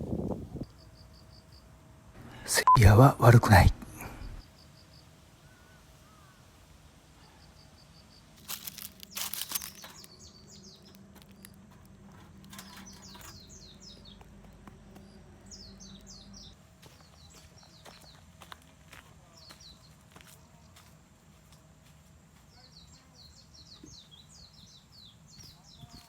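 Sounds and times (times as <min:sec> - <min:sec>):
small birds calling: 0:04.6 - 0:06.6, 0:07.2 - 0:20.9, 0:22.4 - 0:26.0.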